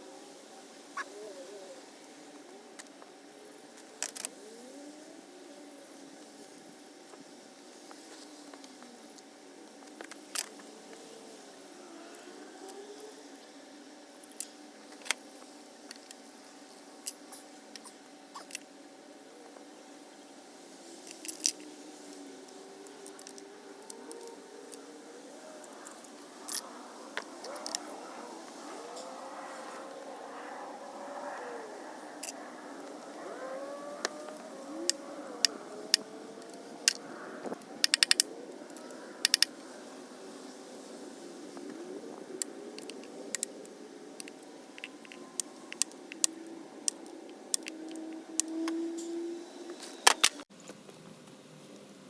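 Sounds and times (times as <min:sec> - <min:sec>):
metallic clicks of hand tools: 0:34.0 - 0:37.0, 0:37.8 - 0:39.5, 0:44.2 - 0:49.2.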